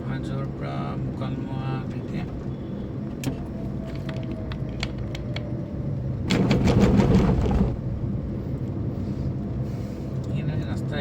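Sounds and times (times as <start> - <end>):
car road noise rumble: 0.0 - 11.0
rapid rattling and clatter: 6.3 - 7.9.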